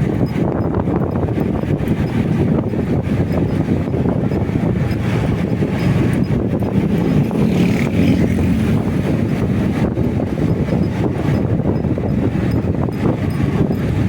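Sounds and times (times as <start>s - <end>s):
motorcycle engine and road rumble: 0.0s - 14.0s
wind buffeting microphone: 0.0s - 14.0s.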